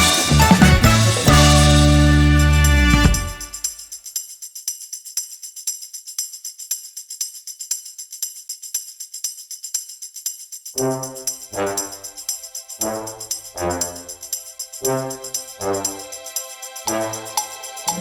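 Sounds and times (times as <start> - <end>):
band music: 0.0 - 3.6, 16.9 - 18.0
jingling hand percussion: 0.0 - 18.0.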